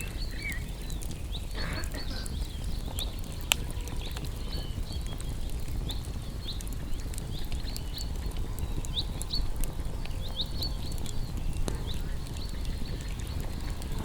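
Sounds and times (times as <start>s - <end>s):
campfire crackling and popping: 0.0s - 14.0s
low rumble: 9.1s - 14.0s.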